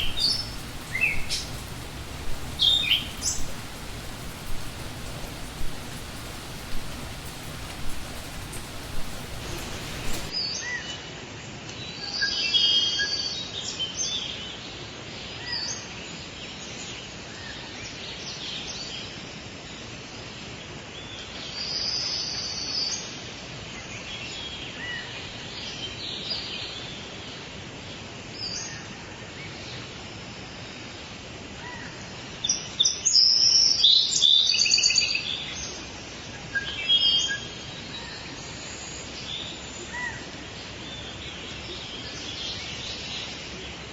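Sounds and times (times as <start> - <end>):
birds chirping and singing: 0.0 - 10.3
steady background hiss: 0.0 - 10.4, 25.4 - 43.9.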